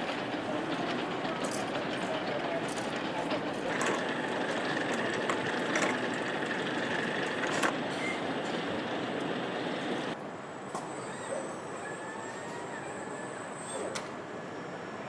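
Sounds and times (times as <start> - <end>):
factory machinery running: 0.0 - 10.2.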